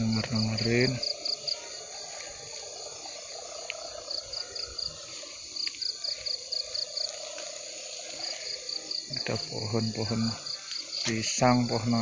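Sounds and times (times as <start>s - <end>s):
crickets chirping: 0.0s - 12.0s
drone of night insects: 0.0s - 12.0s.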